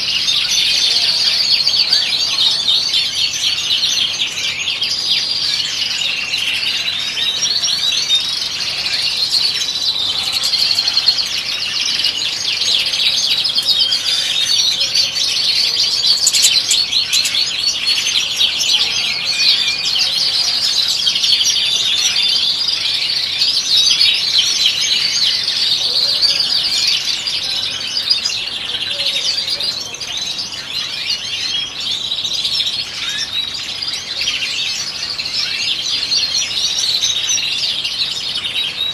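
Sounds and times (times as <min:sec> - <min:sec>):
finches twittering: 0:00.0 - 0:20.0.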